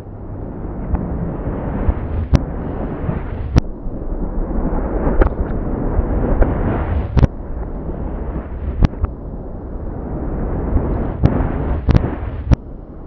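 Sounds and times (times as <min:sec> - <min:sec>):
low rumble: 0:00.0 - 0:13.0
reversed firework bangs: 0:00.8 - 0:03.7, 0:04.6 - 0:09.2, 0:10.7 - 0:12.6.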